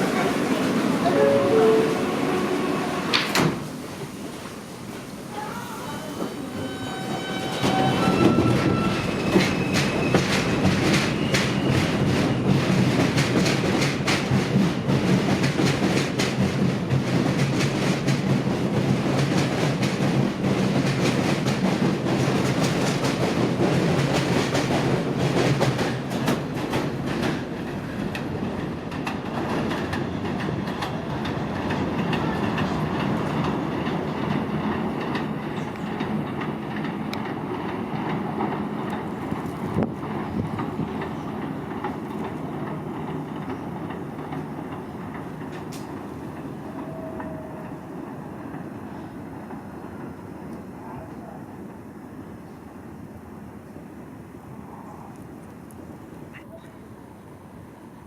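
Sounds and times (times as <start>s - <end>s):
subway train motor whine: 0.0s - 3.9s, 5.3s - 12.6s
train wheels clacking on rails: 6.0s - 50.7s.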